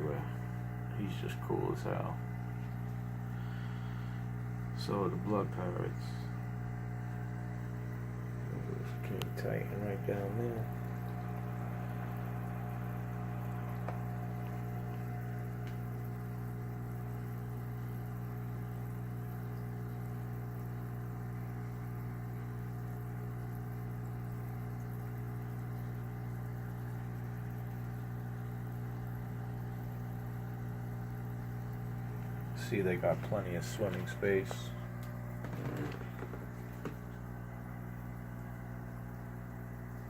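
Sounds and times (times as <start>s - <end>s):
aquarium pump humming: 0.0s - 40.0s.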